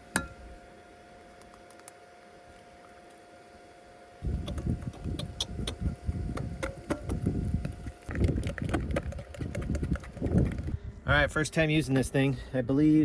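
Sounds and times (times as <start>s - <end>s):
wind buffeting microphone: 4.2s - 11.5s.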